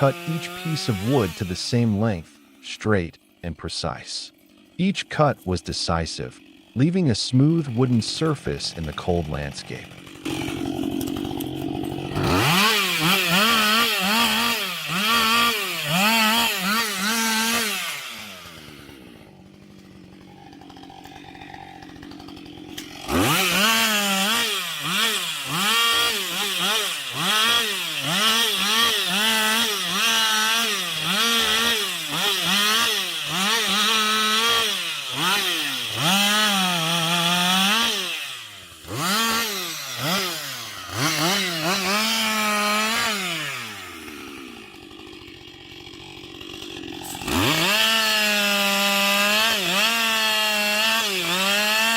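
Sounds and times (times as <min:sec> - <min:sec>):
chainsaw cutting through log: 0:00.0 - 0:51.9.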